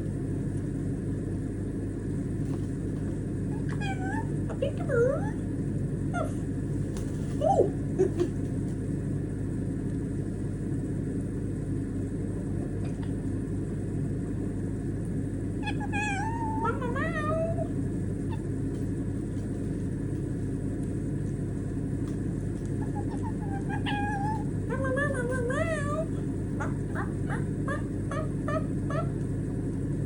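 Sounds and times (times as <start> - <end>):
steady low hum: 0.0 - 30.0
parrot warbling: 3.5 - 5.4, 15.6 - 18.5, 22.8 - 29.2.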